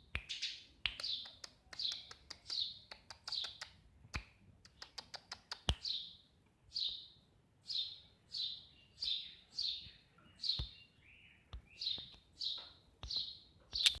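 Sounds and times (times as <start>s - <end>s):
sparrow chirping: 0.2s - 3.8s, 4.7s - 14.0s
sharp clicks: 0.9s - 5.9s.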